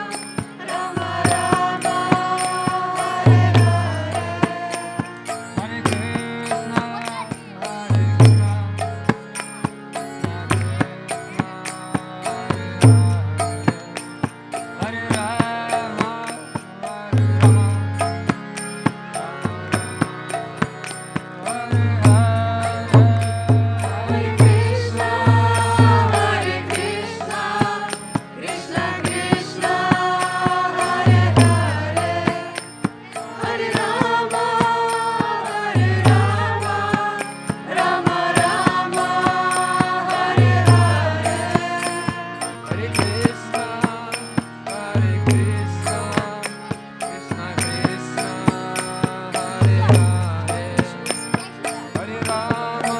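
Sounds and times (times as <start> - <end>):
voices chanting: 0.0 - 7.8, 21.4 - 46.4.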